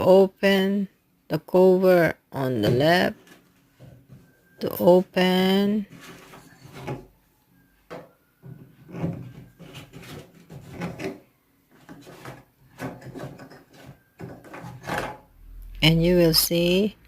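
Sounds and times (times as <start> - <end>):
plastic cap scraping while twisted: 8.8 - 15.2.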